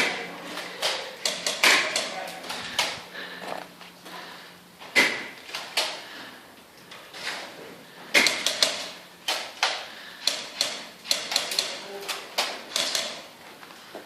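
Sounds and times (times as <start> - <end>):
airsoft guns firing: 0.8 - 2.2, 8.1 - 11.8, 12.4 - 13.3.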